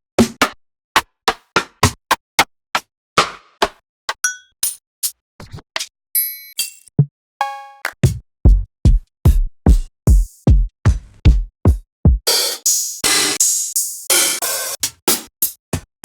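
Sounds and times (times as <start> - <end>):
electronic kick drums: 8.0 - 12.4.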